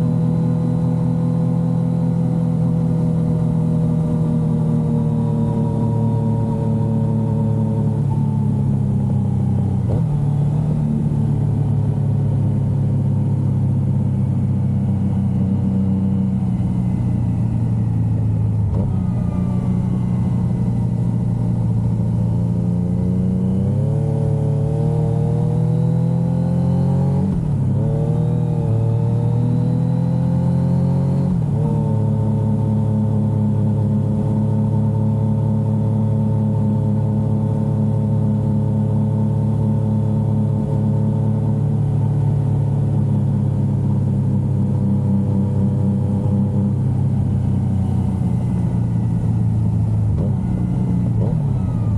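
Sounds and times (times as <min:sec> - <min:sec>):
motorcycle engine revving: 0:14.8 - 0:33.5.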